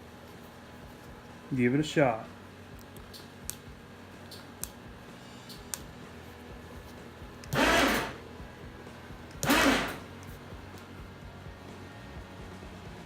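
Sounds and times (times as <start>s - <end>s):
winch motor running: 7.4s - 8.3s, 9.4s - 10.1s.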